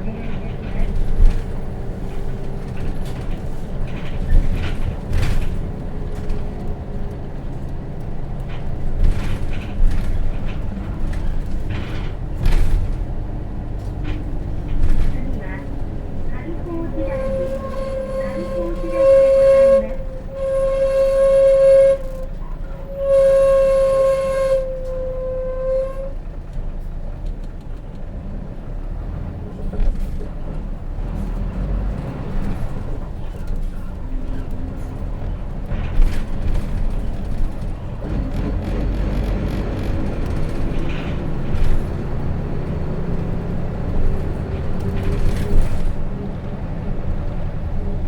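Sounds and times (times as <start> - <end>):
diesel engine rumble: 0.0 - 48.0
rattles inside bus: 0.0 - 48.0
bus brakes squealing: 13.8 - 26.3, 32.4 - 42.6.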